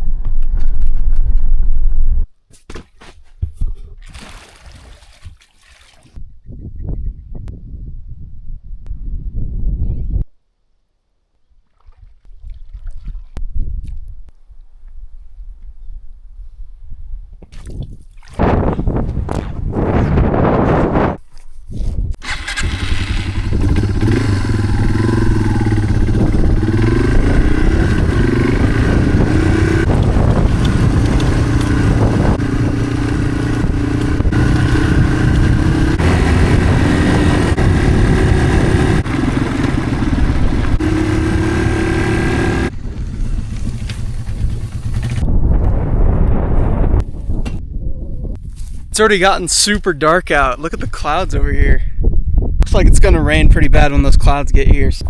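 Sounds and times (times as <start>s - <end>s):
motorcycle engine revving: 22.2s - 45.3s
dull rushing noise: 22.2s - 47.7s.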